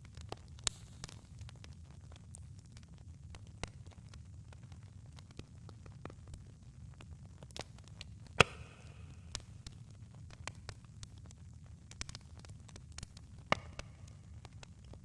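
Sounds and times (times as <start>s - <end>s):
campfire crackling: 0.0s - 15.0s
loud fire pop: 8.4s - 9.7s.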